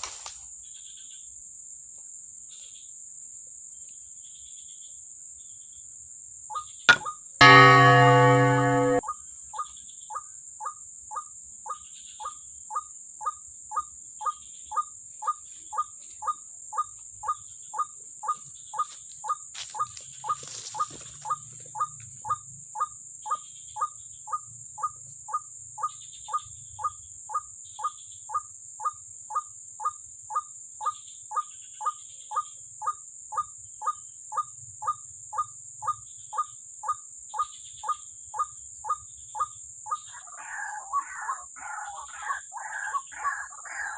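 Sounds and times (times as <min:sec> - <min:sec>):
waterhen call: 0:40.1 - 0:43.9.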